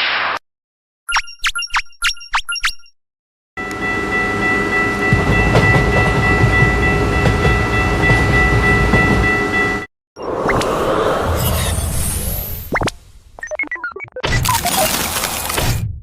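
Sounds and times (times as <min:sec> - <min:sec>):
railroad crossing bell ding: 0:03.6 - 0:09.9
passing train rumble: 0:03.6 - 0:11.4.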